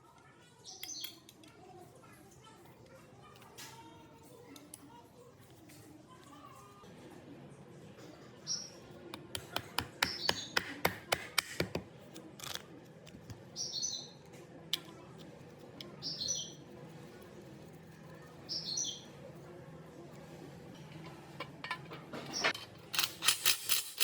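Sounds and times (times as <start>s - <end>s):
small bird chirping: 13.5s - 14.2s, 16.0s - 16.6s, 18.5s - 19.2s.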